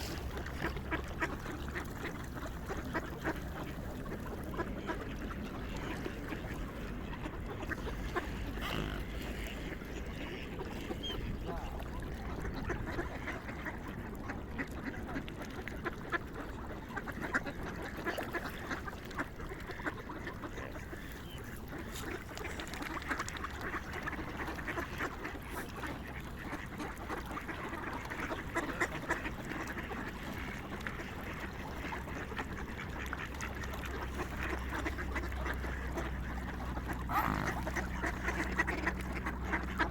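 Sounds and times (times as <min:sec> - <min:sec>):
swans calling: 0:00.0 - 0:12.8, 0:30.4 - 0:39.9.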